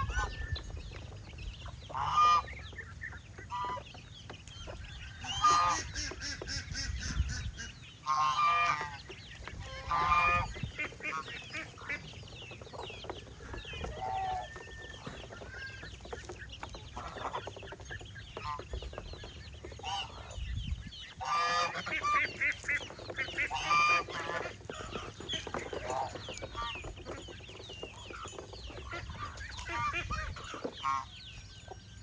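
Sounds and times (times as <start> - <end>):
chickens clucking: 0.0 - 32.0
geese honking: 1.9 - 4.0, 4.6 - 17.8, 18.4 - 20.5, 21.1 - 31.2.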